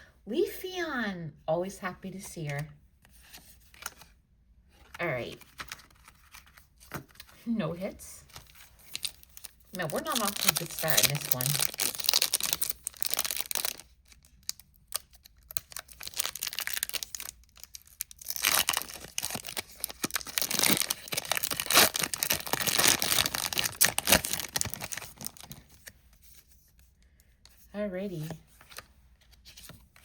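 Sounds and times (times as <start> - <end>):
foil wrapper crinkling and tearing: 8.3 - 25.9.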